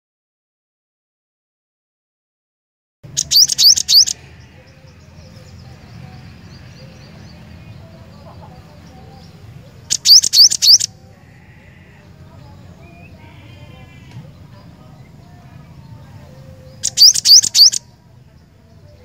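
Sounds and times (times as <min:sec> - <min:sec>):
bird whistling rising notes: 0:03.1 - 0:04.2, 0:09.9 - 0:10.9, 0:16.8 - 0:17.8
soft bird chirps: 0:03.1 - 0:19.0.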